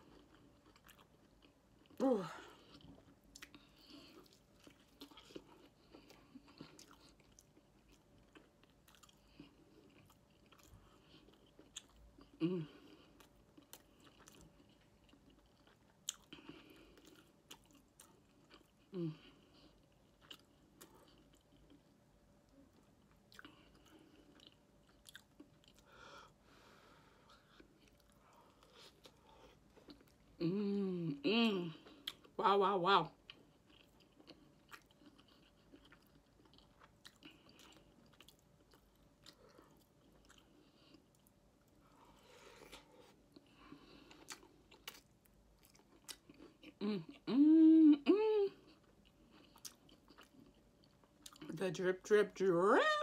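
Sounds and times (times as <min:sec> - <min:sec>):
close-up chewing: 0:00.0 - 0:30.4, 0:33.2 - 0:47.3, 0:48.6 - 0:51.6
person humming: 0:12.4 - 0:12.8, 0:30.4 - 0:31.8, 0:46.8 - 0:48.6.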